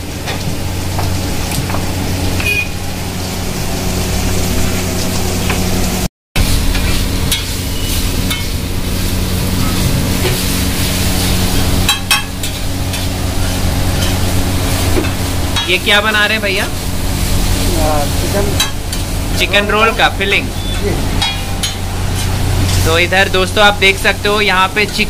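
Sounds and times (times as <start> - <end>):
chicken sizzling on iron pan: 3.3 - 23.1
metal spatula scraping pan: 20.6 - 22.9.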